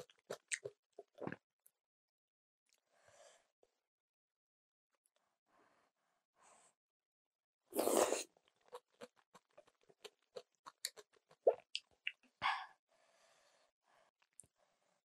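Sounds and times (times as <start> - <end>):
noodle slurp: 7.8 - 11.7.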